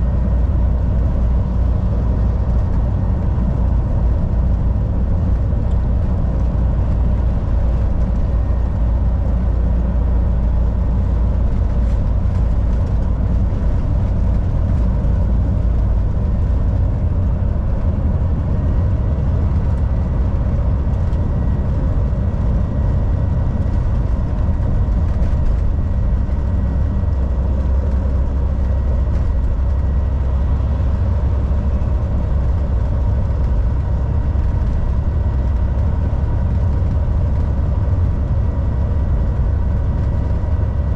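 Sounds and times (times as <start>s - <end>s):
road noise: 0.0s - 40.9s
truck engine drone: 0.0s - 40.9s.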